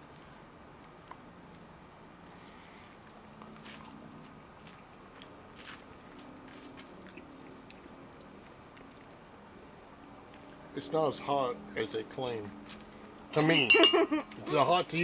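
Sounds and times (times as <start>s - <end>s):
crisp chewing crunches: 0.0s - 9.3s.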